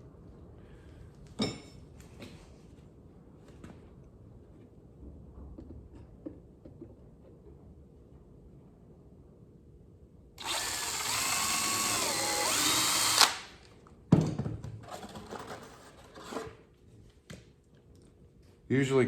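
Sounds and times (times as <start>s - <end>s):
drill driving a screw into wood: 10.4s - 13.6s.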